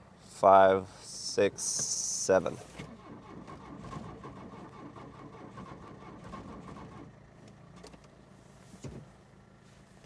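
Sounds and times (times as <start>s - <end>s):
starter motor cranking engine: 2.7s - 7.2s.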